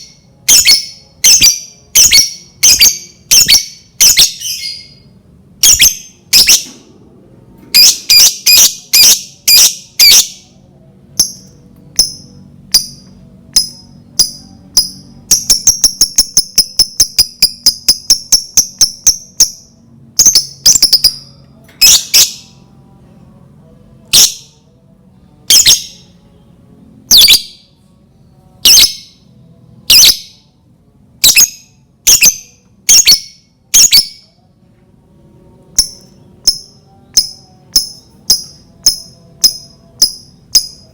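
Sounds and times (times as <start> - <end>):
lovebird shrill chirps: 0.0 - 5.0, 5.6 - 6.7, 7.8 - 10.4, 13.6 - 22.5, 27.1 - 27.6, 28.6 - 29.1, 29.9 - 30.3, 31.2 - 34.2.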